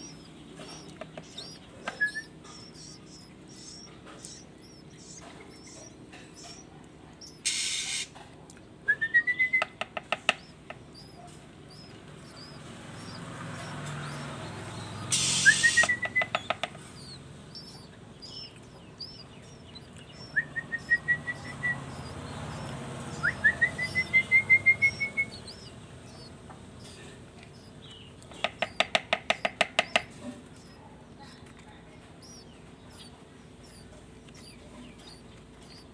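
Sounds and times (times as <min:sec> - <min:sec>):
faint high bird chirps: 0:00.0 - 0:08.1, 0:08.9 - 0:35.9
bird whistled notes and clicks: 0:00.0 - 0:08.2, 0:08.9 - 0:14.3, 0:15.0 - 0:26.3
short hiss-like bursts: 0:07.4 - 0:08.1, 0:15.1 - 0:15.9.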